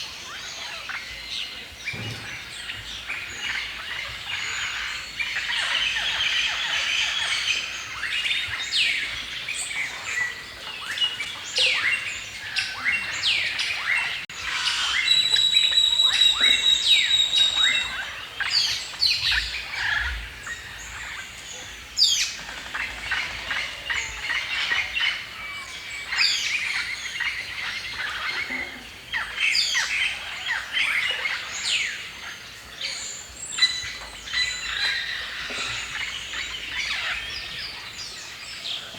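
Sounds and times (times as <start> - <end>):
songbirds chirping and singing: 0.0 - 38.9
bird high whistled note: 14.8 - 17.9.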